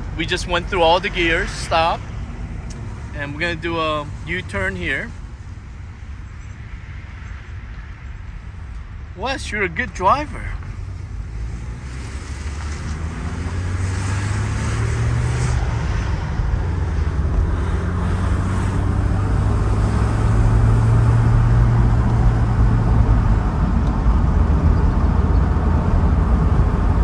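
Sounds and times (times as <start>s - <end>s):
car engine inside cabin: 0.0s - 5.1s, 9.3s - 27.0s
road noise: 0.0s - 27.0s.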